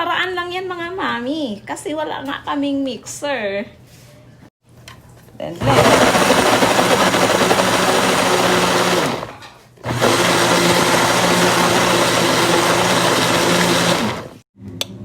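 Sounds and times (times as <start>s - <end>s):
electric blender running: 5.6s - 14.4s.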